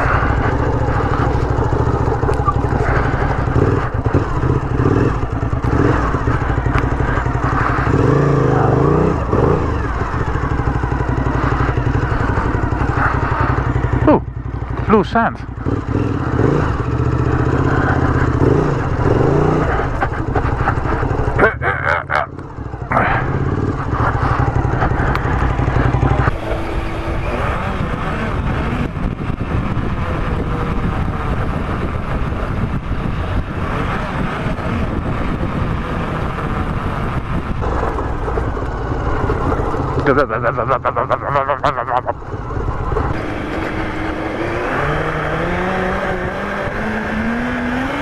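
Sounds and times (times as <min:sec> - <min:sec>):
motorcycle engine running: 0:00.0 - 0:48.0
wind noise: 0:23.1 - 0:40.0.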